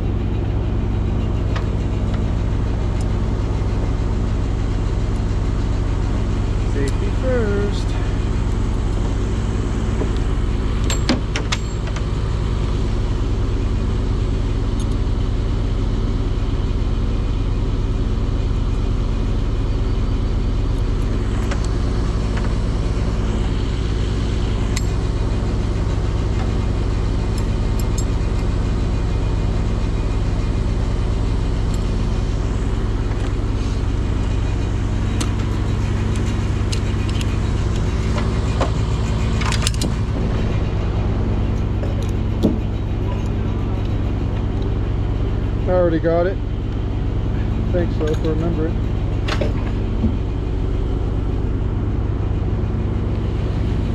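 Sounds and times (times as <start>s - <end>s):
engine running steadily: 0.0s - 53.9s.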